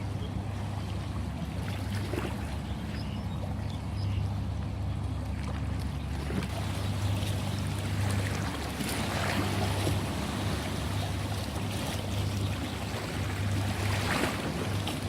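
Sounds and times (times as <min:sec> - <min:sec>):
constant low rumble: 0:00.0 - 0:15.0
ocean waves washing: 0:04.3 - 0:15.0.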